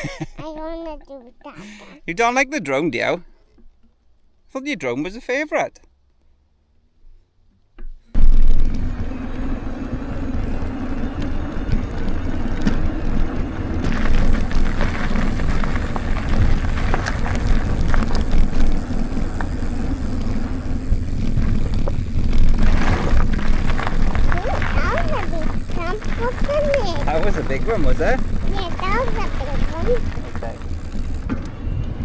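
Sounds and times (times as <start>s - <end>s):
bike tyre rumble: 8.2s - 31.4s
bike clicks and rattles: 8.2s - 31.5s
wind buffeting microphone: 8.6s - 31.3s.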